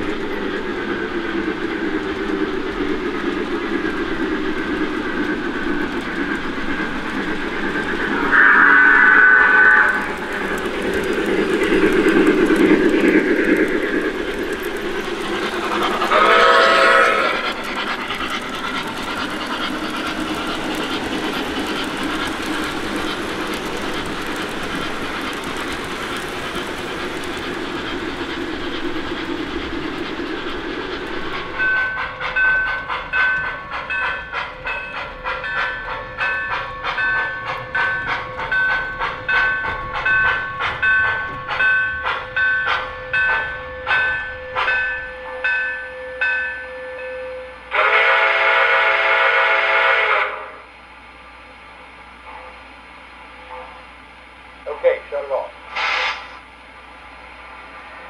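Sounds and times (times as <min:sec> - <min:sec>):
steam hiss: 0:00.0 - 0:43.6, 0:47.3 - 0:58.0
steam locomotive chuffing: 0:00.0 - 0:58.0
model train whistle: 0:08.2 - 0:10.1, 0:16.1 - 0:17.4, 0:47.7 - 0:50.6.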